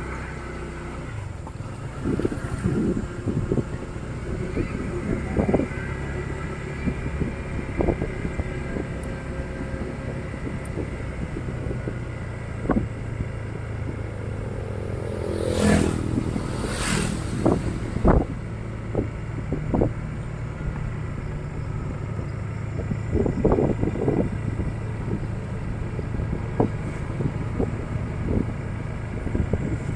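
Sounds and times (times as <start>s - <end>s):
motorcycle engine running: 0.0s - 29.9s
loud rushing noise: 12.6s - 19.0s.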